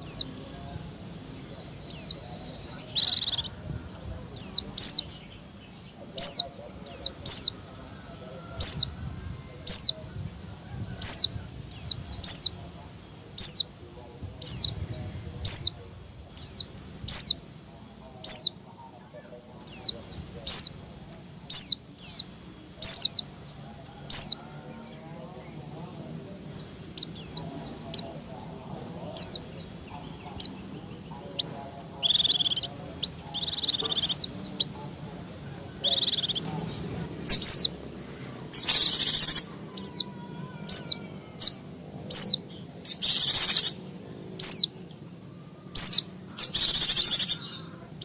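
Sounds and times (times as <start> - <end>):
bird giving sharp high calls: 1.4 - 3.6, 4.4 - 7.6, 9.6 - 12.6, 13.4 - 13.7, 15.4 - 17.4, 21.5 - 23.3, 31.3 - 34.8, 35.8 - 37.8, 38.5 - 44.7, 45.4 - 48.0.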